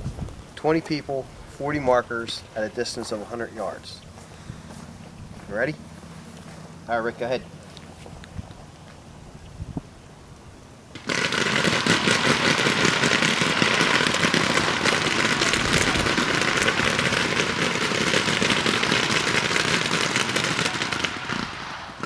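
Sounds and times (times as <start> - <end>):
paintball markers firing: 11.0 - 22.0.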